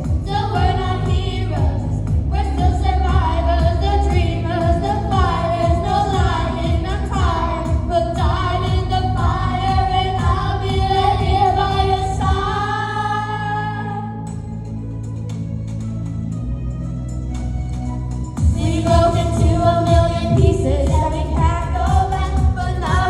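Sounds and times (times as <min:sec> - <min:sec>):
pop beat: 0:00.0 - 0:12.6, 0:18.4 - 0:23.0
female vocals singing wordless notes: 0:18.5 - 0:23.0.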